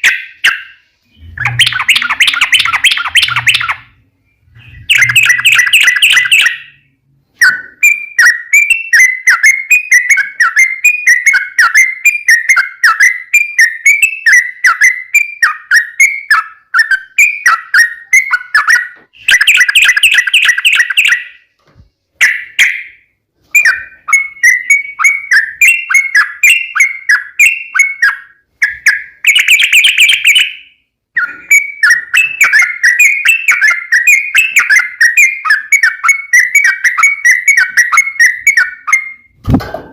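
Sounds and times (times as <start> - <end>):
bird chattering: 0.0 - 3.9, 4.5 - 6.8
bird chirping: 0.0 - 39.6.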